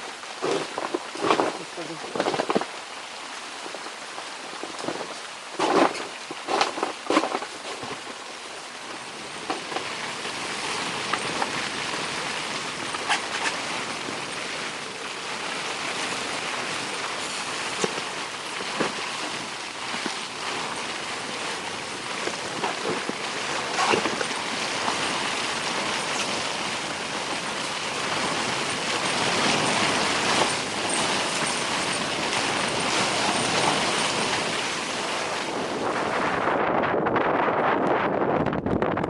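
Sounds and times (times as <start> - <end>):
strong wind blowing: 26.9 - 39.0.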